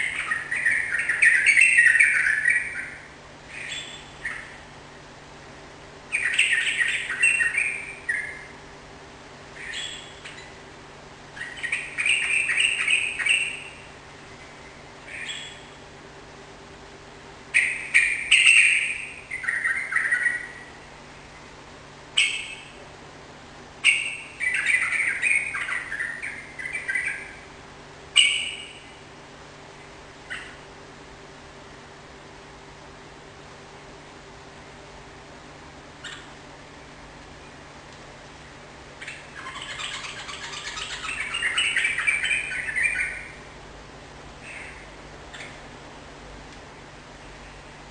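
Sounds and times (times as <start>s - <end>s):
soft bird call: 0.0s - 4.7s, 6.1s - 8.6s, 9.5s - 10.6s, 11.3s - 15.8s, 17.5s - 21.5s, 22.1s - 22.8s, 23.8s - 29.0s, 30.2s - 30.7s, 36.0s - 37.7s, 39.0s - 43.6s, 44.4s - 45.7s.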